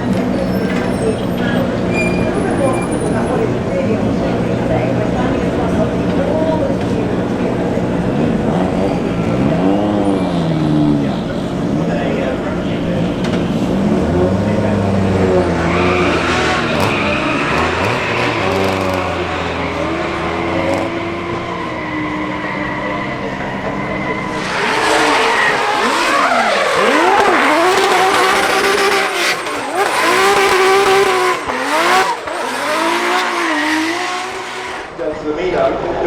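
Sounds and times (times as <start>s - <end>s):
tyre squeal: 0.0s - 3.6s, 15.2s - 34.9s
car engine revving: 0.0s - 36.0s.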